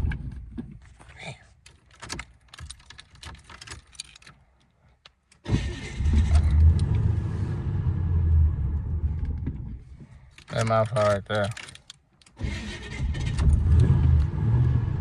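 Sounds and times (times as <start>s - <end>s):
car engine starting rumble: 5.5s - 9.8s, 12.4s - 15.0s.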